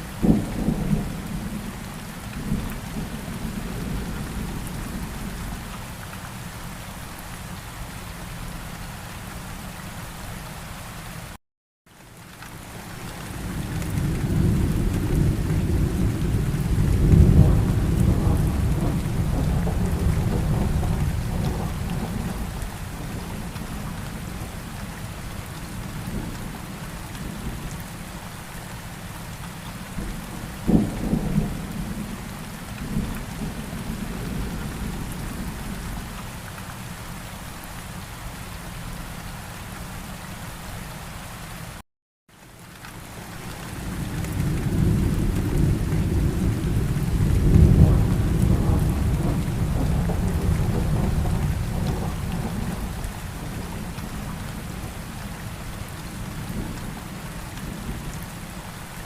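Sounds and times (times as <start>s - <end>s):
steady rain: 0.0s - 59.0s
thunder rumbling: 13.4s - 24.8s, 43.7s - 55.2s
sharp thunderclap: 44.3s - 52.8s.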